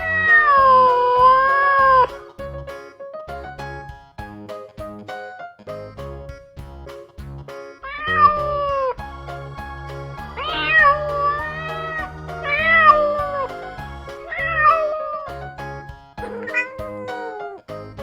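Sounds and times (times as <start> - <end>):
background music: 0.0 - 18.0
cat meowing: 16.3 - 17.6.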